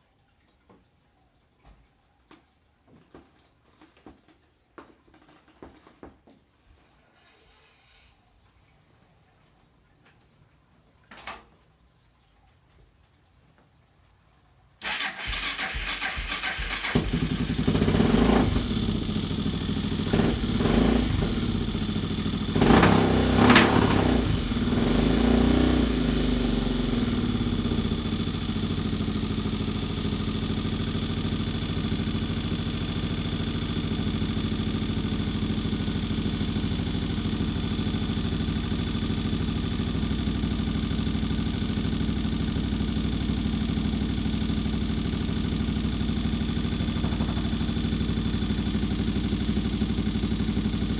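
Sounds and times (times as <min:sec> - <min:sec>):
motorcycle engine cranking: 0:14.8 - 0:50.9
motorcycle engine revving and idling: 0:14.8 - 0:50.9.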